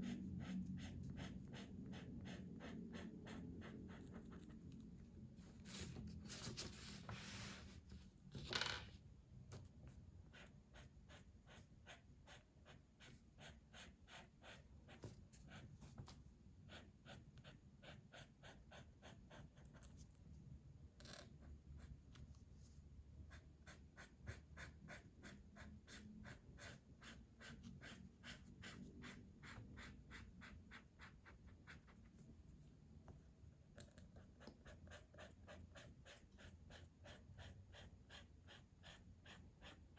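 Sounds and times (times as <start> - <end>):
colouring tool scratching paper: 23.3 - 32.0, 34.4 - 39.9.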